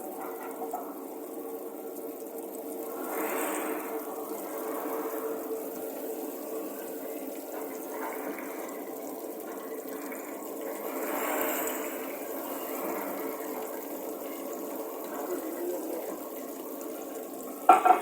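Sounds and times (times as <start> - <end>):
faucet water splashing into sink: 7.2 - 18.0.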